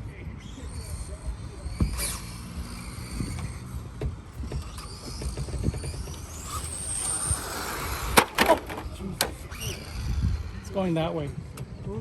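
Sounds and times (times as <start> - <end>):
electric toy car motor whining: 0.4 - 10.6.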